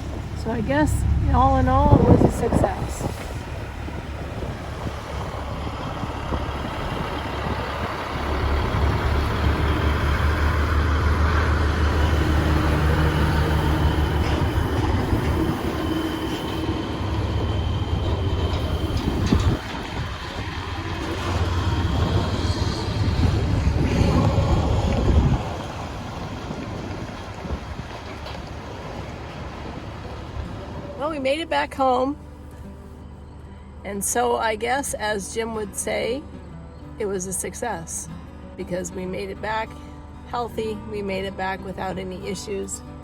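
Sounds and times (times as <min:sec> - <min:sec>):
truck diesel engine humming: 0:00.0 - 0:43.0.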